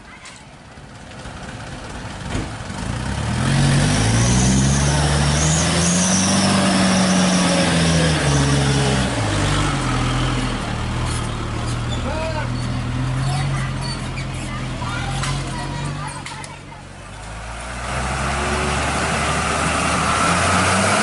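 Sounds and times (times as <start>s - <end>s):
diesel truck engine revving: 1.4s - 21.0s.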